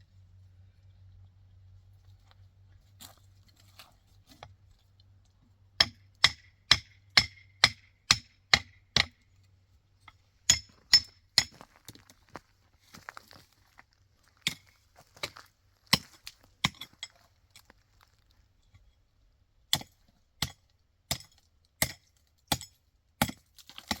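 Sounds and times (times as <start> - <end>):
hand tool striking hard: 5.8 - 9.2, 10.5 - 11.6, 19.7 - 24.0.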